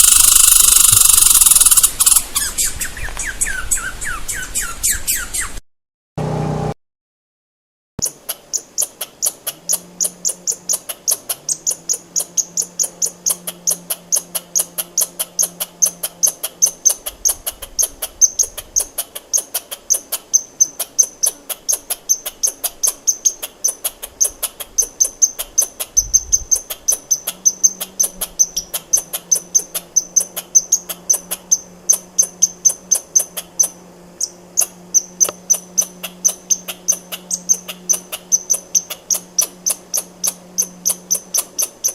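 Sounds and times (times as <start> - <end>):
squirrel alarm chirps: 0.0 - 5.5, 18.2 - 41.9.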